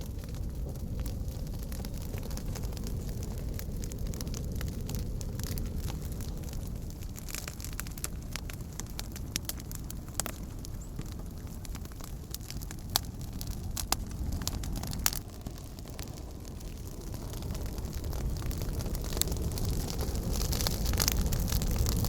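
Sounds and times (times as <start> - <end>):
campfire crackling: 0.0 - 22.0
campfire pops: 0.0 - 22.0
steady low rumble: 0.0 - 22.0.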